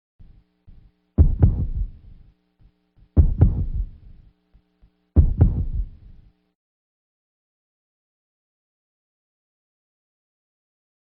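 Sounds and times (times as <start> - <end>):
faint low hum: 0.2 - 6.6
deep heartbeat thumps: 1.2 - 2.2, 3.2 - 4.2, 5.2 - 6.2.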